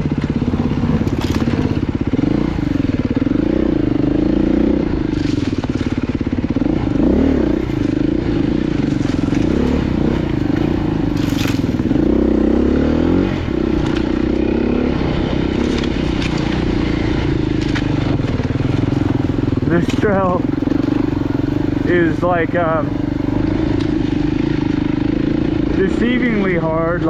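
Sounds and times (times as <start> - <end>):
stones clicking under tyres: 0.0 - 3.3, 5.0 - 7.0, 7.7 - 12.3, 13.5 - 21.8, 23.5 - 24.9
motorcycle engine revving: 0.0 - 27.0.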